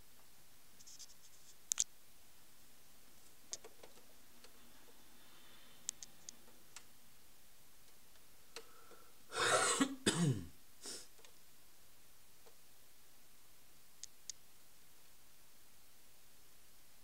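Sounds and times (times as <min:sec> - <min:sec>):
faint clicks: 0:01.7 - 0:01.9
person coughing: 0:09.3 - 0:11.1.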